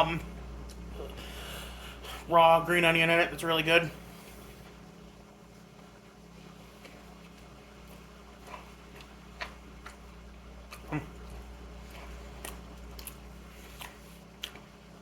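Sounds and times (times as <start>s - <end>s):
low electrical hum: 0.0s - 15.0s
faint chewing: 5.7s - 15.0s.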